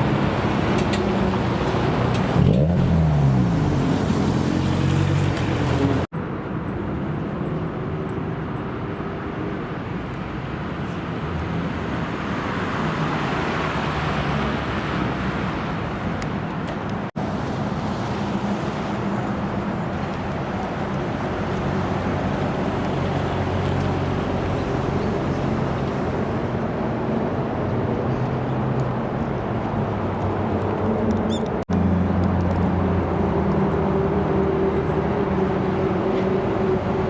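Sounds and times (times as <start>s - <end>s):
road and traffic noise: 0.0s - 37.0s.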